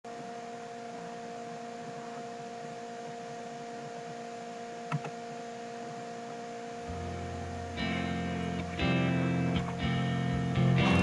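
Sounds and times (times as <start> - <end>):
two-tone electrical hum: 0.0 - 11.0
short click: 4.9 - 5.2.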